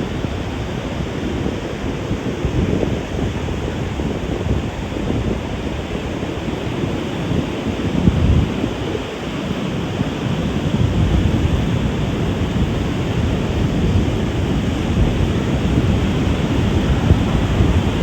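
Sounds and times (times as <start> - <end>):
wind buffeting microphone: 0.0 - 18.0
breaking surf: 10.2 - 18.0.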